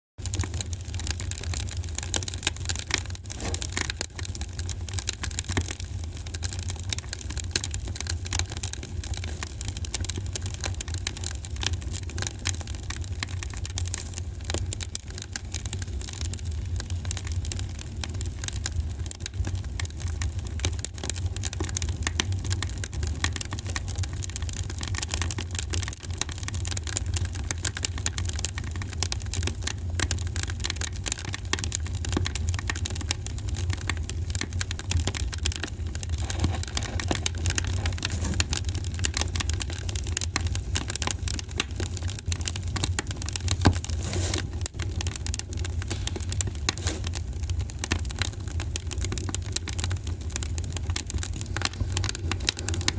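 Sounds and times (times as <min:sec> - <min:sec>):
wood fire crackling and popping: 0:00.2 - 0:52.9.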